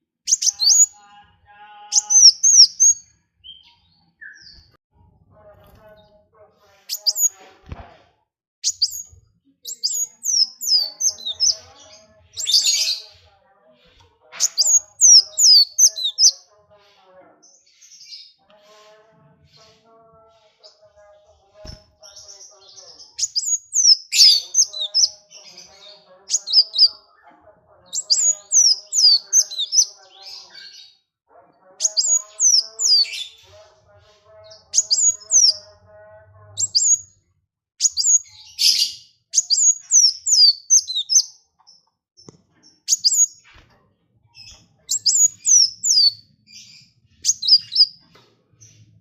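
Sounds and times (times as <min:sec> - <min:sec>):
songbird singing: 0:00.3 - 0:04.8, 0:06.9 - 0:07.4, 0:08.6 - 0:13.3, 0:14.4 - 0:16.5, 0:19.6 - 0:31.1, 0:31.8 - 0:33.6, 0:34.3 - 0:37.2, 0:37.8 - 0:43.6, 0:44.3 - 0:49.0
soft warbling chatter: 0:00.3 - 0:41.6, 0:42.4 - 0:49.0.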